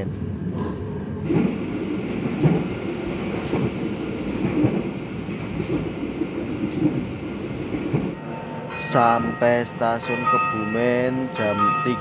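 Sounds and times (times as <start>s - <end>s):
train rumble inside carriage: 0.0s - 12.0s.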